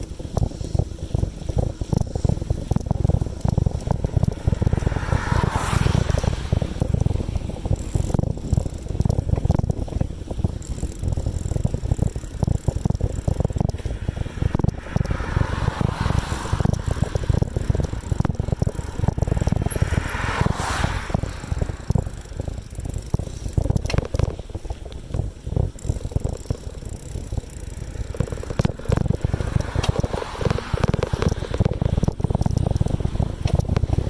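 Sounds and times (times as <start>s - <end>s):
bicycle rattling over pavement: 0.0s - 34.0s
rushing noise: 3.0s - 8.8s, 13.8s - 23.6s.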